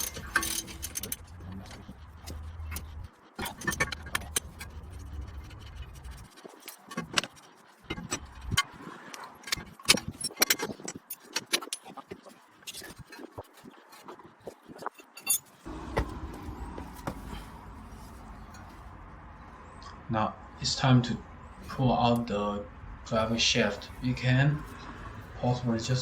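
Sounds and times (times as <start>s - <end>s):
metal tools clinking: 0.0s - 5.0s, 14.8s - 19.0s.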